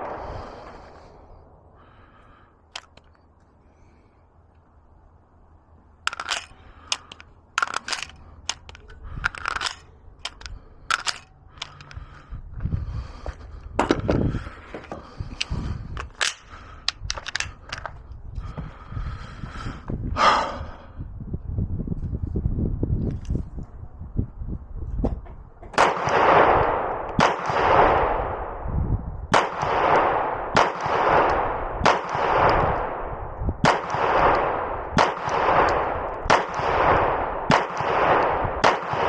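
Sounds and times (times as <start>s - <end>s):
rumbling handling noise: 0.0s - 4.7s, 5.7s - 20.8s
sharp clicks and knocks: 6.1s - 12.0s.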